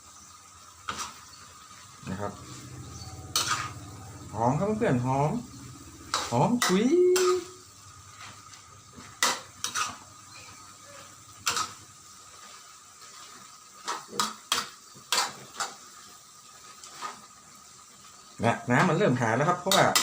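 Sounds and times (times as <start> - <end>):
faint steady hiss: 0.0 - 20.0
spatula knocking and scraping pan: 2.1 - 4.0, 9.0 - 10.0, 19.7 - 20.0.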